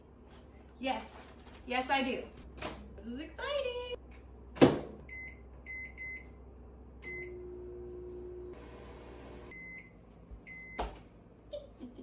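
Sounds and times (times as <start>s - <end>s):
microwave oven humming: 4.0s - 11.4s
microwave control panel beeping: 5.0s - 6.4s, 7.0s - 7.8s, 9.4s - 11.0s.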